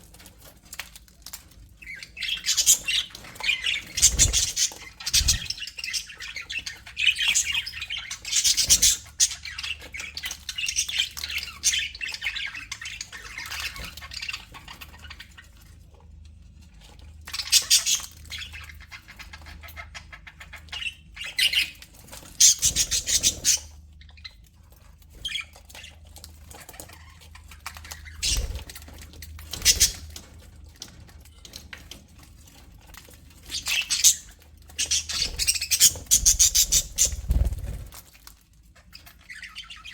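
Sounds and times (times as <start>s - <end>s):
budgerigars chattering and warbling: 1.8s - 15.6s, 17.2s - 24.4s, 25.2s - 30.3s, 33.4s - 37.9s
loud squawking bird calls: 2.4s - 6.2s, 34.8s - 37.9s.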